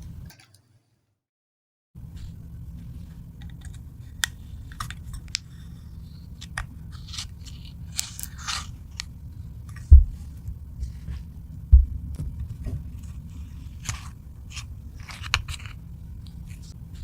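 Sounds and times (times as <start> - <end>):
steady low hum: 2.0 - 17.0
dull thump: 9.9 - 10.2.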